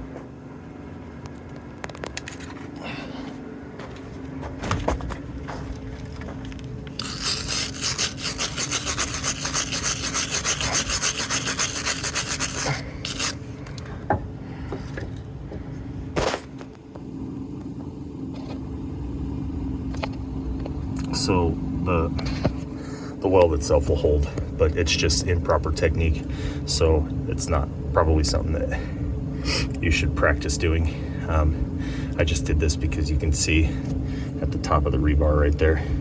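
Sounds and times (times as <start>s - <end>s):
steady low hum: 0.0s - 36.0s
wire brush scrubbing metal: 7.0s - 13.4s.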